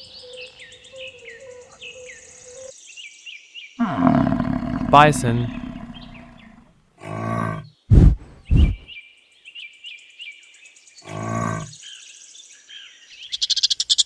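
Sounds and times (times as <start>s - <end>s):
birds chirping: 3.8s - 6.6s
short loud low calls: 3.8s - 6.6s
bison bellowing: 3.8s - 7.6s, 11.1s - 11.7s.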